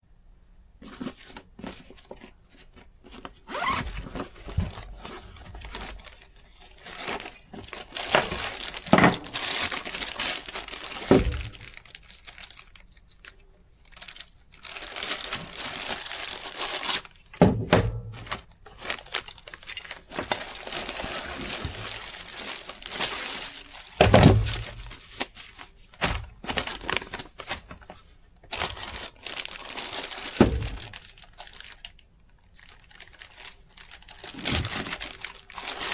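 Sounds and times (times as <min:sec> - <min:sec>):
packaging rustling and tearing: 0:03.2 - 0:17.4, 0:18.1 - 0:35.9
knocks and thumps: 0:17.4 - 0:18.4.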